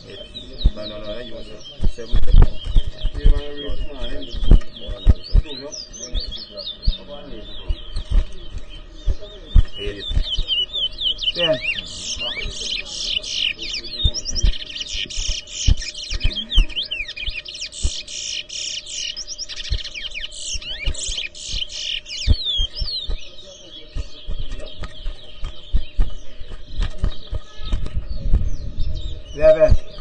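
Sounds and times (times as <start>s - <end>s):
low thumps: 0.0s - 12.9s, 13.8s - 18.1s
finch singing trilled notes: 0.0s - 30.0s.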